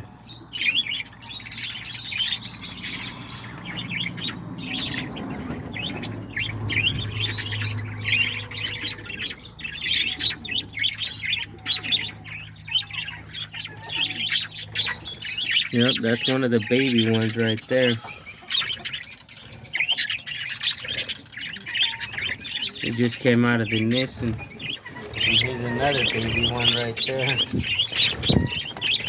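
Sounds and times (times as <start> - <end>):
parakeets chattering: 0.0 - 29.0.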